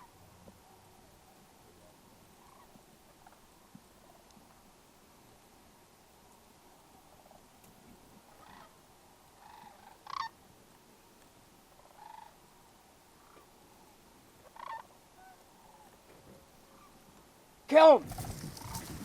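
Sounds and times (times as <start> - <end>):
cranes rattling calls: 8.3 - 8.8, 9.4 - 10.4, 11.8 - 12.4, 14.4 - 16.0, 18.1 - 19.0.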